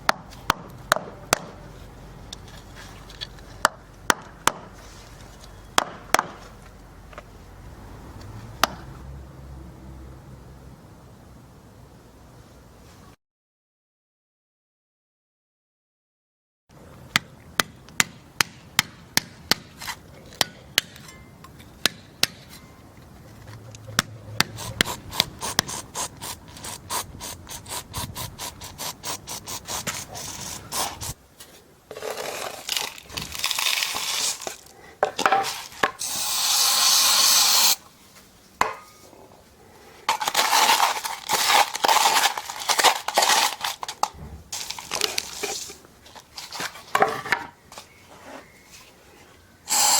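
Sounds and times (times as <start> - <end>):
gritty scraping and rasping: 22.5 - 37.8, 39.9 - 47.4.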